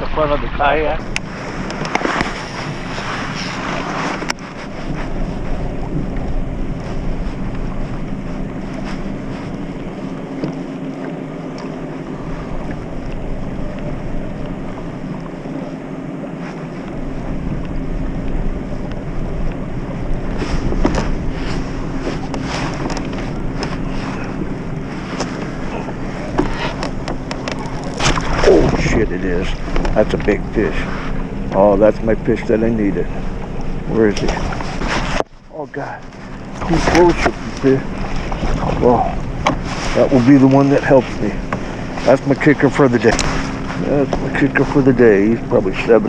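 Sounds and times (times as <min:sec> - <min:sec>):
wind buffeting microphone: 0:00.0 - 0:46.0
light knocks on kayak: 0:39.4 - 0:39.7.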